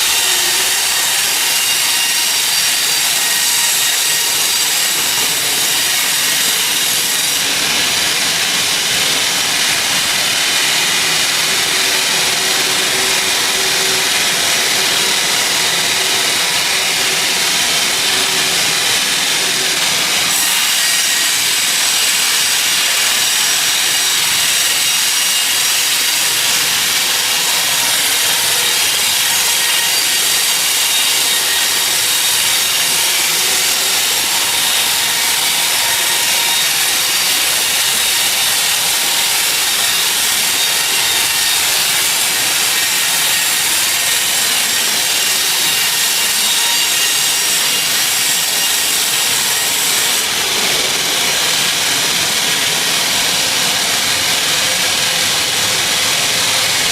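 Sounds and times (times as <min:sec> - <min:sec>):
saw blade cutting log: 0:00.0 - 0:56.9.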